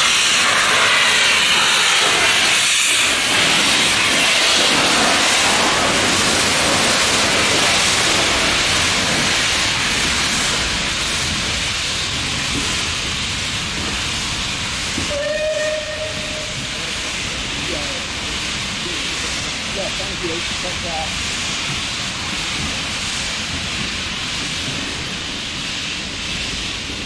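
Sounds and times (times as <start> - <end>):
steam locomotive hissing: 0.0 - 27.0.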